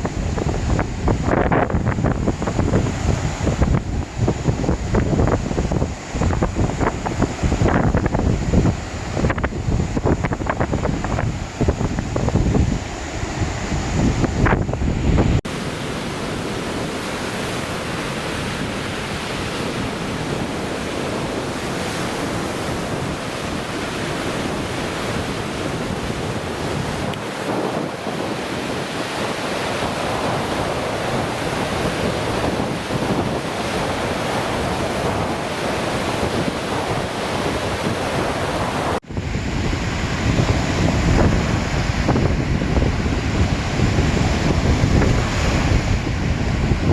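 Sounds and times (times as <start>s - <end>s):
wind buffeting microphone: 0.0s - 46.9s
waves washing onto shore: 15.3s - 46.9s.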